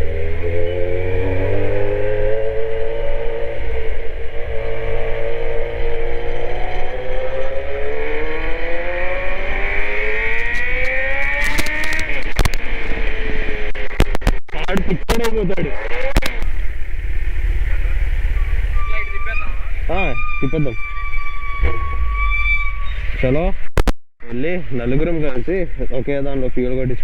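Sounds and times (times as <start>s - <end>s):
motorcycle engine accelerating: 0.0s - 18.9s.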